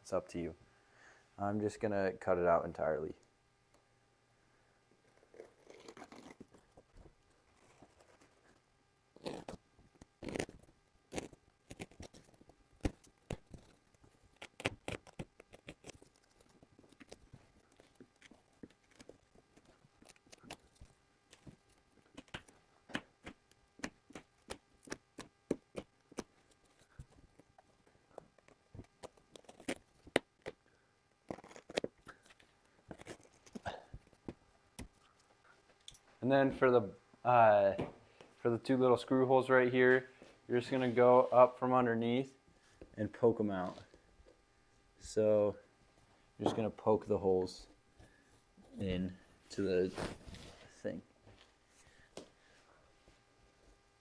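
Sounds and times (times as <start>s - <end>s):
fabric being cut by hand: 5.1s - 6.7s, 9.2s - 17.2s.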